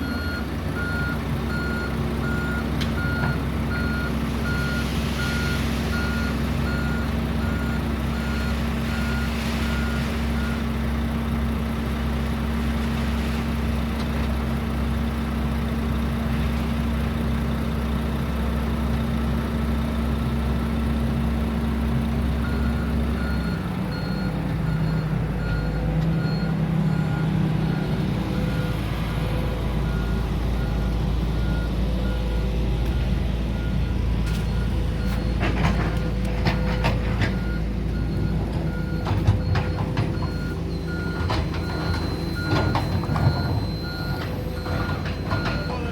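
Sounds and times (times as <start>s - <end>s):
reversing alarm beeping: 0.0s - 10.6s, 22.4s - 28.8s, 29.8s - 35.4s, 36.5s - 45.9s
diesel engine running: 0.0s - 45.9s.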